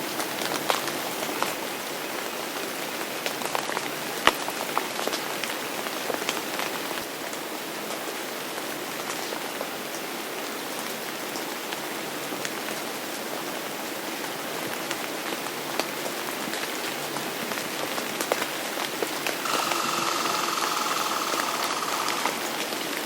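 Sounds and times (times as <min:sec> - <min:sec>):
rain on a hard surface: 0:00.0 - 0:19.5
steady whining hum: 0:19.4 - 0:22.7.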